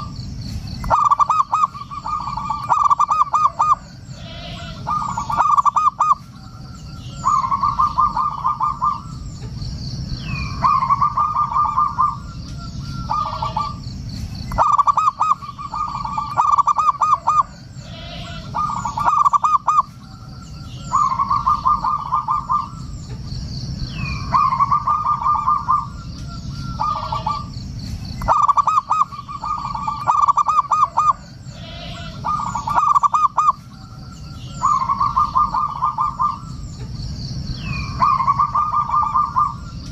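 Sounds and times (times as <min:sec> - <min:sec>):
faint high chirping: 0:00.0 - 0:39.9
low background rumble: 0:00.0 - 0:39.9
dove cooing: 0:00.8 - 0:09.5, 0:10.2 - 0:13.9, 0:14.5 - 0:23.2, 0:23.9 - 0:27.5, 0:28.2 - 0:36.8, 0:37.6 - 0:39.9.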